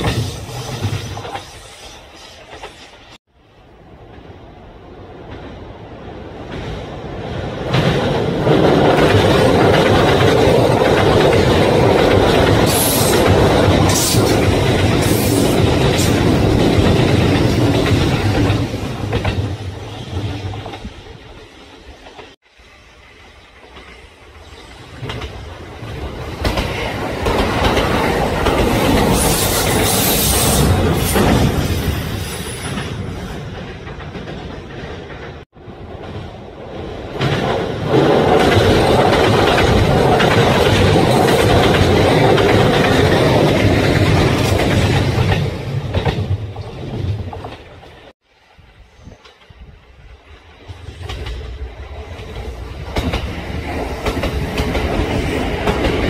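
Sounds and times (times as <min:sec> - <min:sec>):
train wheels clattering on rails: 0:00.0 - 0:03.2, 0:06.4 - 0:22.4, 0:23.5 - 0:48.2, 0:50.6 - 0:56.0.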